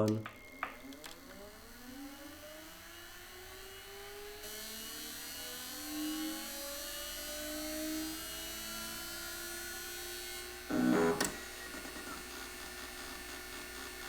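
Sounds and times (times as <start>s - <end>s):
hard drive motor whine rising: 0.1s - 14.0s.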